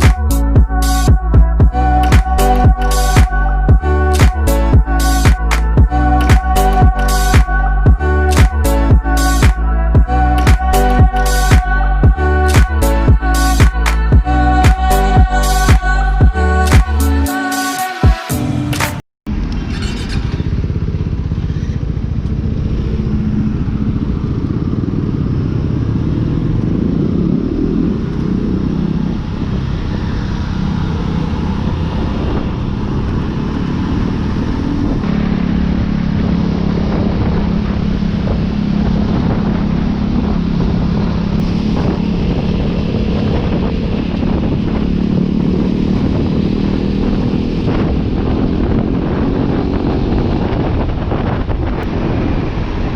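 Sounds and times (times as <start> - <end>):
motorcycle engine running: 0.0 - 17.2, 19.3 - 52.9
wind noise on microphone: 19.3 - 52.9.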